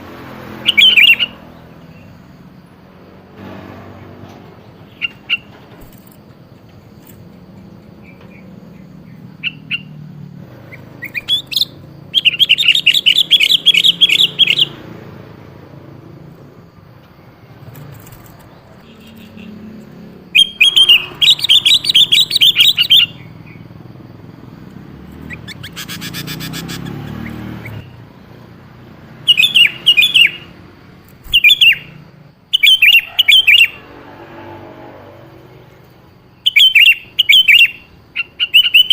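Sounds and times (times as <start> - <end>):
bird chattering calls: 0.6 - 2.1, 10.7 - 14.8, 20.3 - 23.6, 25.1 - 28.0, 29.2 - 30.6, 31.2 - 33.8, 36.4 - 38.9
single bird chirps: 0.6 - 2.4, 4.2 - 14.8, 17.0 - 23.7, 29.2 - 33.8, 36.3 - 38.9.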